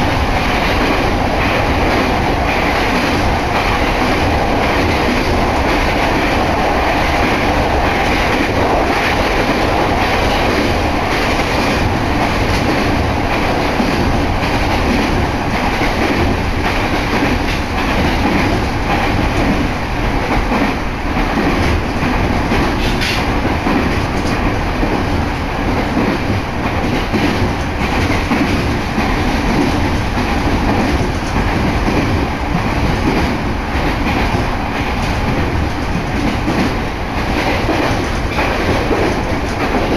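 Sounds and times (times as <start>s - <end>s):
train wheels rumbling on rails: 0.0s - 39.9s
light clatter over track: 20.3s - 39.9s.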